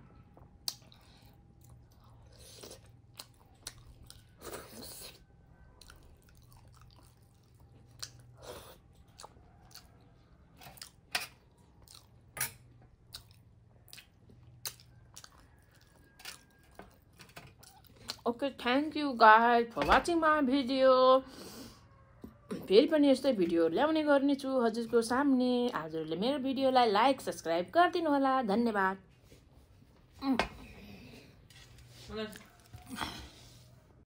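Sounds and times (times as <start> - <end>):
faint low hum: 0.0 - 21.1
person chewing wetly: 0.4 - 18.2.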